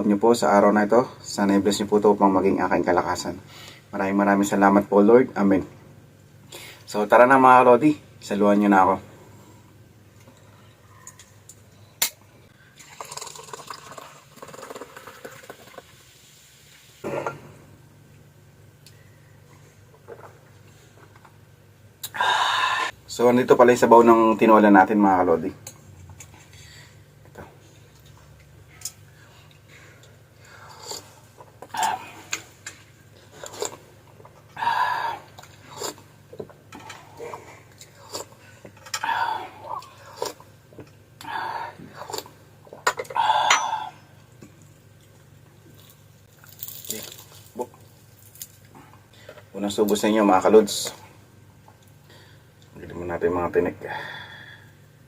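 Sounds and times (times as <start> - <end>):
liquid and dish sounds: 12.8 - 17.7, 35.3 - 39.2, 41.8 - 49.5
person slurping: 30.5 - 32.4, 33.2 - 33.9, 34.6 - 36.1, 41.2 - 42.3
tableware clinking: 42.9 - 43.9.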